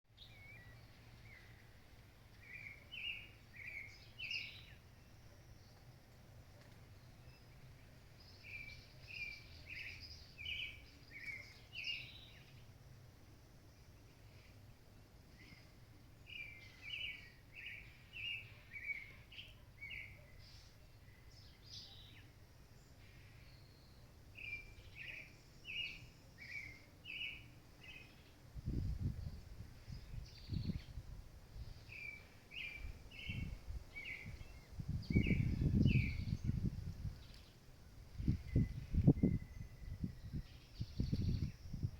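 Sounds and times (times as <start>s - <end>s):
birds chirping: 0.1s - 12.8s, 13.7s - 41.9s
bird chirping phrases: 2.4s - 5.8s, 6.9s - 12.7s, 31.7s - 37.6s
faint high bird calls: 8.3s - 12.7s, 15.4s - 28.4s.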